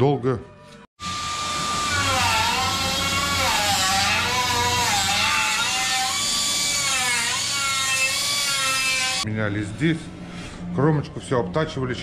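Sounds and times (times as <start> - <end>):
power tool motor whining: 1.0 - 9.2.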